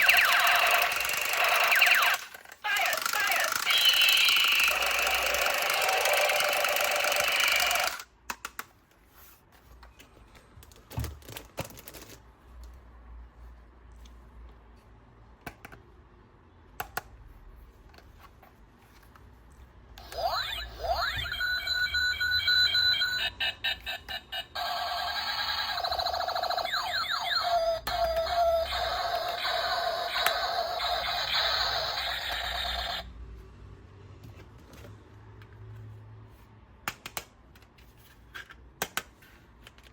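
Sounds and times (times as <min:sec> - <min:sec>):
electronic toy sound effects: 0:00.0 - 0:08.0, 0:20.0 - 0:33.1.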